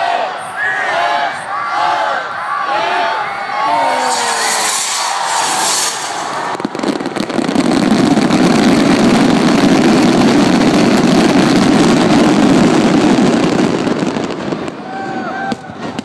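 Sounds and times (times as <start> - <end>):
fireworks bangs and crackling: 3.2 - 16.0.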